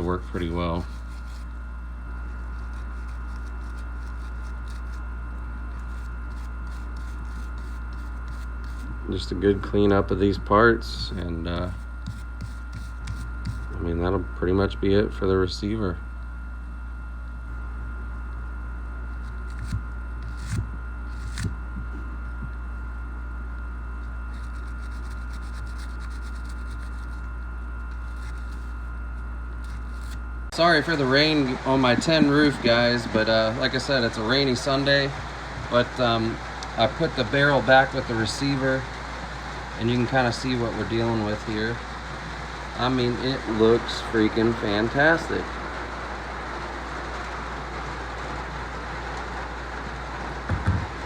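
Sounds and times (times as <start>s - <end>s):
brush scrubbing metal parts: 0.0s - 1.6s, 2.2s - 5.0s, 5.7s - 9.3s, 10.9s - 13.8s, 24.3s - 27.3s, 27.9s - 28.9s
steady low hum: 0.0s - 51.0s
rain on a tin roof: 41.8s - 51.0s.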